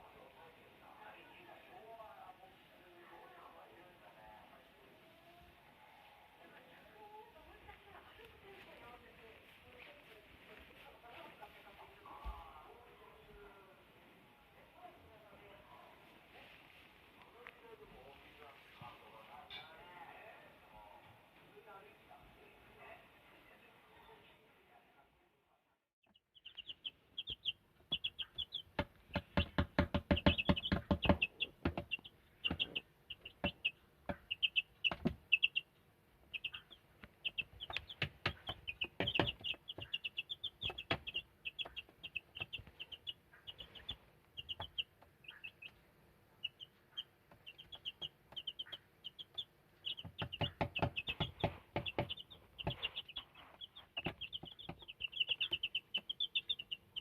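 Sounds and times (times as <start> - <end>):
chickens peeping: 26.4 - 57.0.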